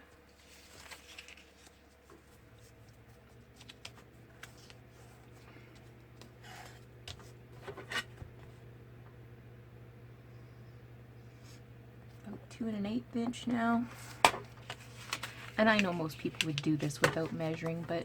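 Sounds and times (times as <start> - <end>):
paper rustling: 0.0 - 8.5, 13.9 - 18.0.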